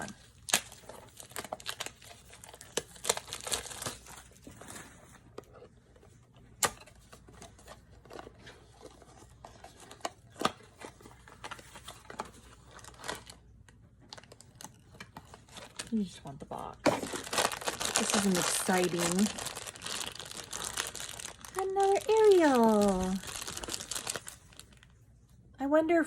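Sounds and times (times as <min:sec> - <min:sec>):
packaging snapping: 0:00.0 - 0:04.3, 0:16.9 - 0:24.8
packaging tearing and crinkling: 0:00.0 - 0:05.0, 0:06.6 - 0:13.4, 0:14.1 - 0:16.0, 0:16.9 - 0:24.9.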